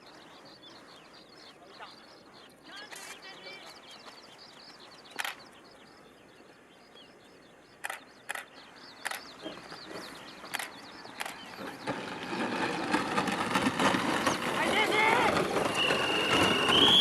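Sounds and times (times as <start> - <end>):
small birds chirping: 0.0 - 17.0
broad rushing noise: 7.8 - 17.0.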